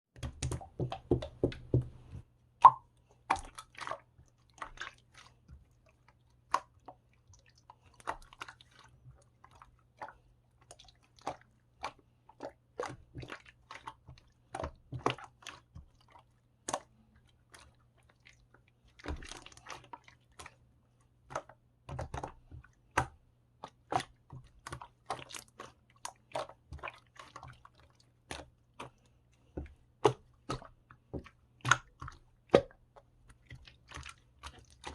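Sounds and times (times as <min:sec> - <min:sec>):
chewing and crunching: 0:24.0 - 0:34.9.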